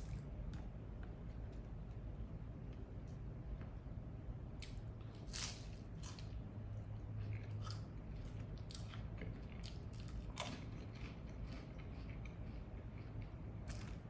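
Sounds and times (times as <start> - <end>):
low steady hum: 0.0 - 14.0
crunchy chewing: 4.6 - 14.0.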